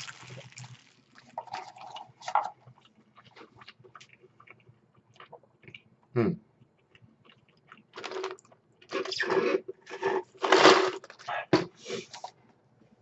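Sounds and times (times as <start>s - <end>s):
crunchy chewing: 0.0s - 2.0s.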